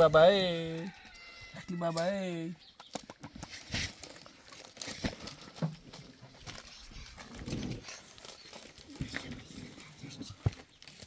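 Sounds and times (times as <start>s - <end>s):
farm animals: 0.0s - 4.4s.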